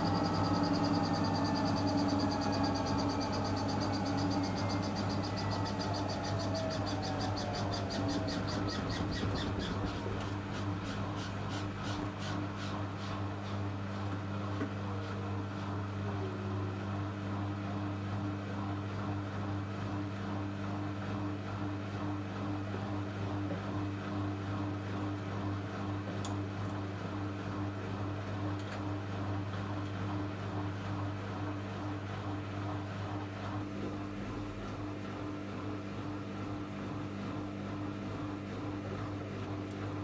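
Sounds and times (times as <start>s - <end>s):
washing machine humming: 0.0s - 40.0s.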